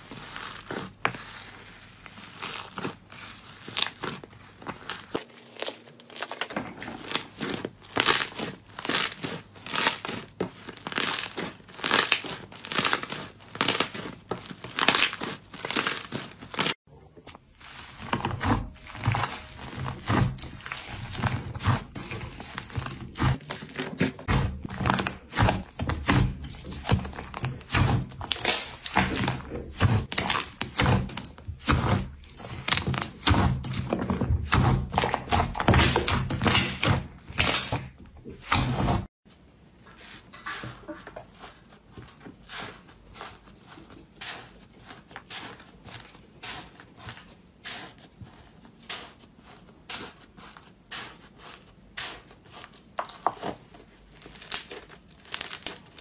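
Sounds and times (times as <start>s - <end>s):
slime crackling when squeezed: 54.2s - 56.0s.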